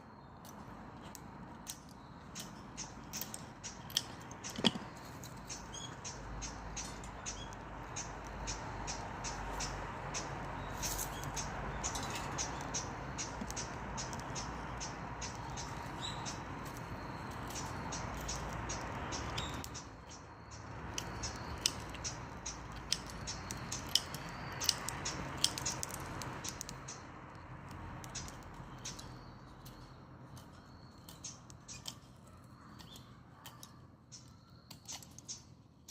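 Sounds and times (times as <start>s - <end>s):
branches crackling and popping: 0.4s - 33.7s.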